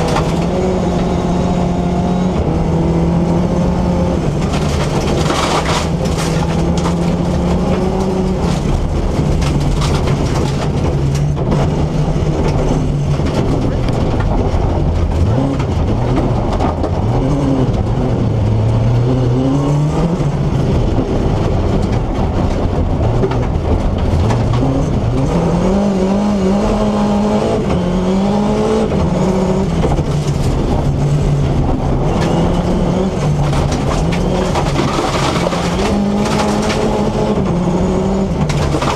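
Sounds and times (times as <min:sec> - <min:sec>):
rally car engine revving: 0:00.0 - 0:38.9.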